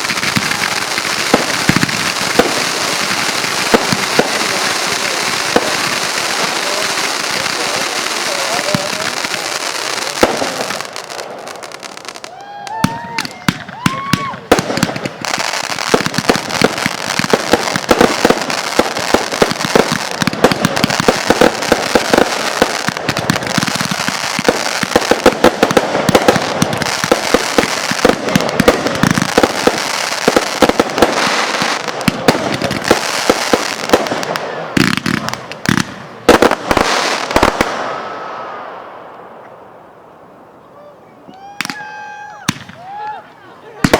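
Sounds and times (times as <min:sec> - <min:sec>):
loud fireworks bangs: 0:00.0 - 0:39.4, 0:41.4 - 0:43.0
fireworks crackling: 0:00.0 - 0:40.5, 0:41.4 - 0:43.9.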